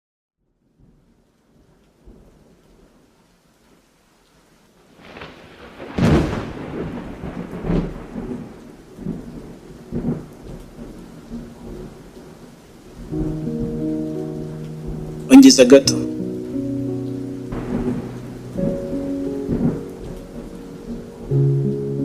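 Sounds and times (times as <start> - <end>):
rain hiss: 0.6 - 22.0
rolls of thunder: 5.0 - 12.0, 17.5 - 22.0
thunderclap: 5.0 - 12.4, 17.5 - 21.8.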